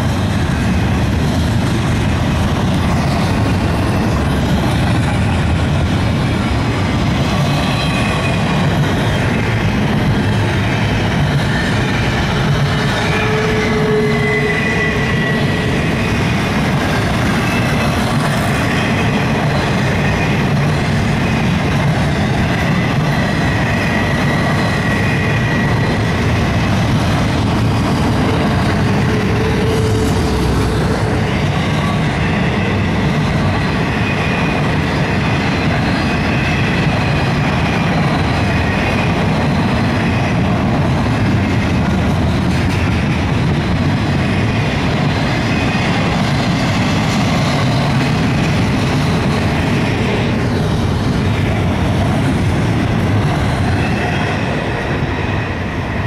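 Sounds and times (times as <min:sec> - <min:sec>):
steel wheels rumbling on rail: 0:00.0 - 0:56.0
high wheel squeals: 0:12.7 - 0:16.6.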